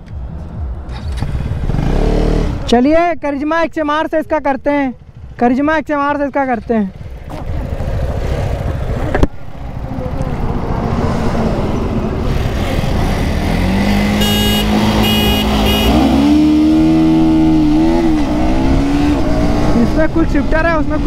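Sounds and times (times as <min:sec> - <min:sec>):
wind: 0:00.0 - 0:21.0
motorcycle engine accelerating: 0:00.6 - 0:02.7, 0:07.0 - 0:20.6
short high beeps: 0:14.2 - 0:16.1.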